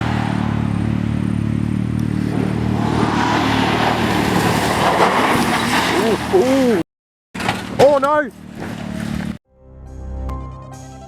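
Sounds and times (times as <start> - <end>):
vehicle engine running: 0.0 - 4.4, 7.4 - 9.4.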